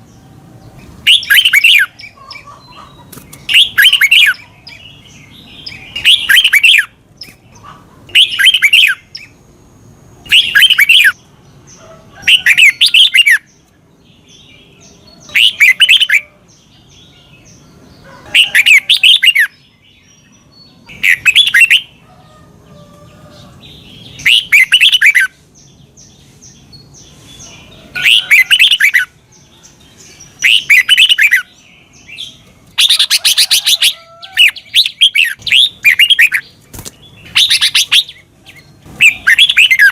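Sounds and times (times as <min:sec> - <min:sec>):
bulbul warbling song: 0:00.8 - 0:09.4, 0:10.2 - 0:11.3, 0:20.8 - 0:22.0, 0:28.0 - 0:39.9.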